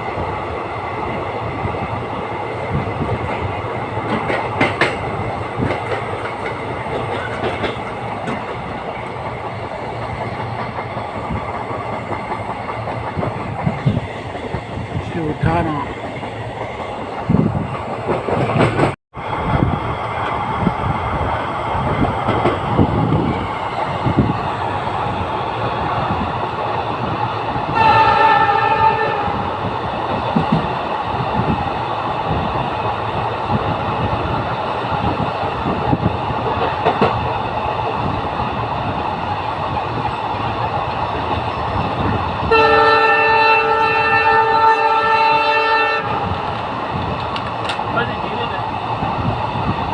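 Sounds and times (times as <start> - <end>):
train rumble: 0.0 - 49.9
wheels clacking over rail joints: 2.7 - 19.0, 25.5 - 38.0, 45.6 - 49.0
train horn: 27.7 - 29.4, 42.5 - 46.3.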